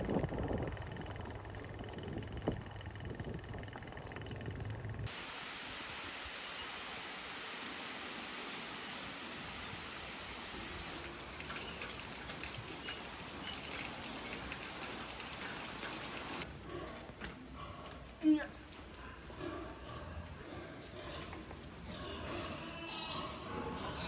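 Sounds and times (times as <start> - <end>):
hiss of water: 5.1 - 16.5.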